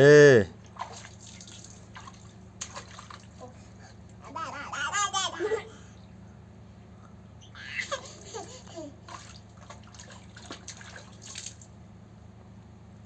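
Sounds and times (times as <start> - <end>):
children splashing in water: 0.7 - 3.6, 7.8 - 11.7
child babbling: 4.2 - 5.8.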